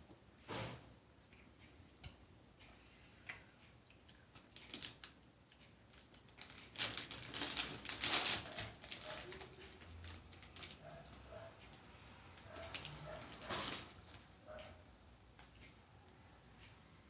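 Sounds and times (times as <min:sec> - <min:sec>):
popcorn crunching: 0:05.9 - 0:11.2.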